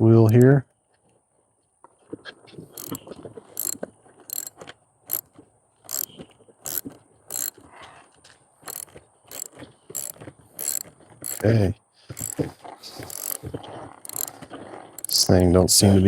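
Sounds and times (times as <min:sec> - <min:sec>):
ratchet wrench clicking: 0:00.0 - 0:00.4, 0:02.8 - 0:03.0, 0:03.6 - 0:04.5, 0:05.1 - 0:05.3, 0:05.9 - 0:07.6, 0:08.7 - 0:11.6, 0:12.2 - 0:12.4, 0:13.0 - 0:13.4, 0:14.0 - 0:14.4, 0:15.0 - 0:15.5.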